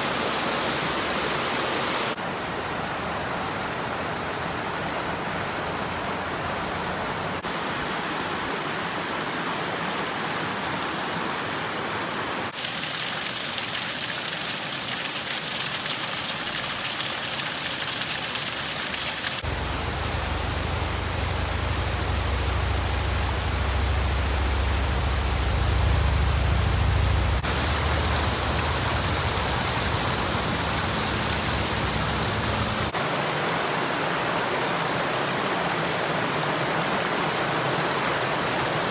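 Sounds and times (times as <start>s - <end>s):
waterfall rushing: 0.0s - 2.2s, 17.8s - 38.9s
heavy low rumble: 19.4s - 32.9s.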